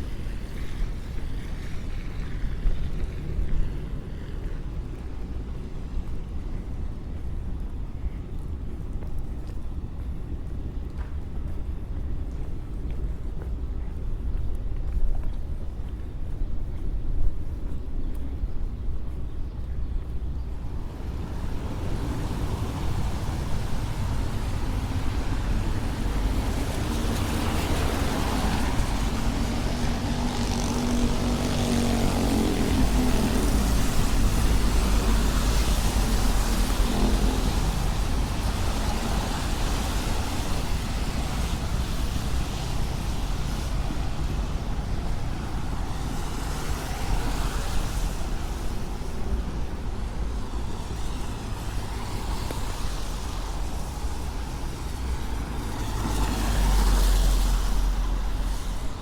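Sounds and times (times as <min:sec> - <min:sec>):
traffic rumble on wet street: 0:00.0 - 0:59.0
heavy vehicle passing: 0:20.7 - 0:59.0.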